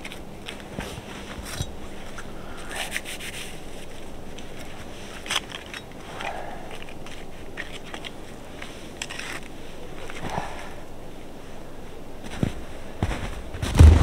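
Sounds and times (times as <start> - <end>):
rubbing and scraping: 0.0 - 10.8.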